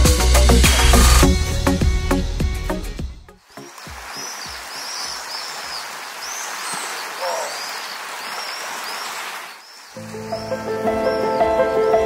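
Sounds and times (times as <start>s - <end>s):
outdoor ambient hiss: 3.4s - 10.8s
birds chirping: 3.4s - 12.0s.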